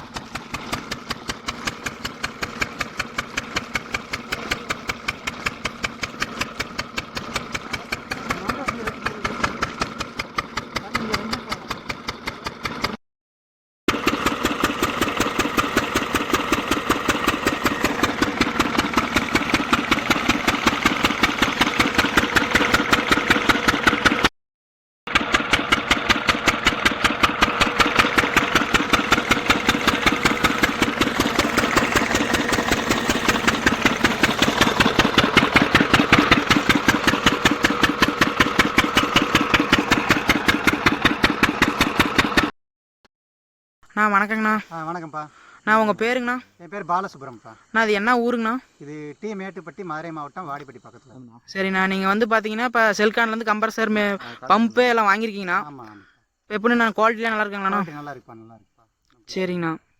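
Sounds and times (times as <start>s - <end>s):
diesel engine driving compressor: 0.0s - 13.0s, 13.9s - 24.3s, 25.1s - 42.5s.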